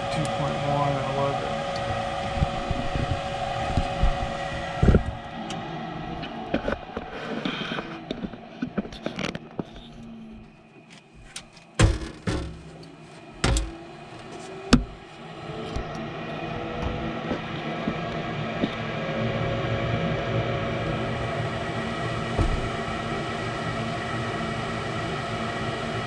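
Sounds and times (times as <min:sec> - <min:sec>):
furnace motor humming: 0:00.0 - 0:06.4, 0:10.0 - 0:26.0
sharp knocks and clicks: 0:11.2 - 0:13.8, 0:14.7 - 0:15.0.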